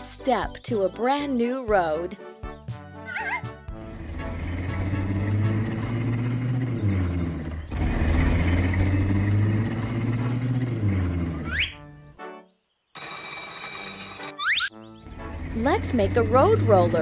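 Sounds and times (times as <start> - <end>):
cartoon engine running: 3.2 - 11.8, 15.1 - 17.0.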